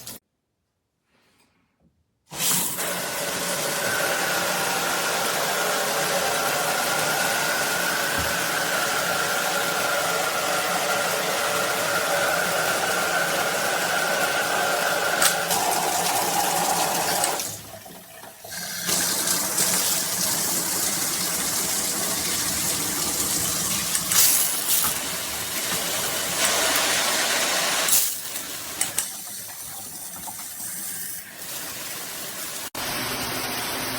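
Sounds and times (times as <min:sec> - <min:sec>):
shower head spraying water: 0:04.3 - 0:17.6, 0:18.5 - 0:32.7.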